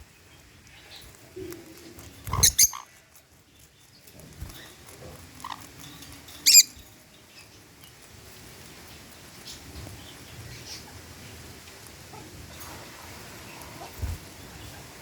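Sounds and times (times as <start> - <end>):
parrots screeching: 2.3 - 2.9, 6.5 - 6.8.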